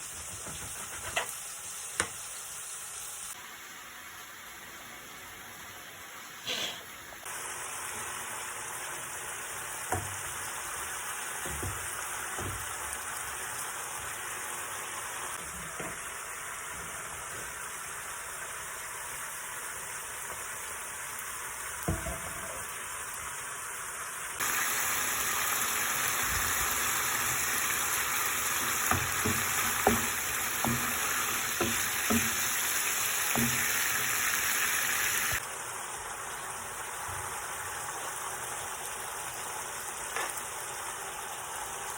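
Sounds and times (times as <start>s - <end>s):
food sizzling in hot oil: 0.0s - 41.9s
utensil knocking against pan: 28.8s - 32.5s, 33.3s - 33.8s.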